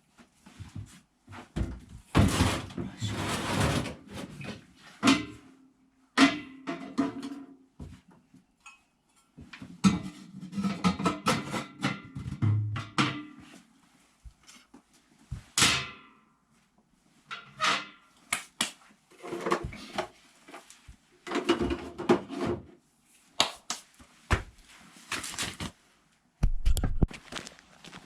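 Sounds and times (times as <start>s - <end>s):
objects being handled: 26.4s - 28.0s.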